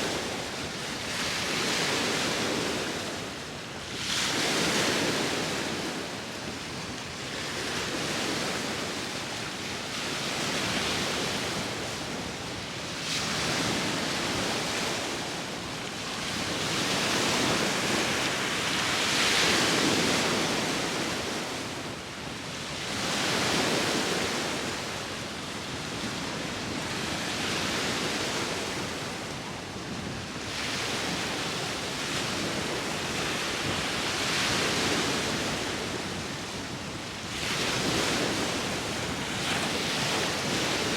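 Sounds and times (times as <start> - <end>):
sea waves breaking on shore: 0.0 - 40.9
wind on microphone: 25.6 - 40.9.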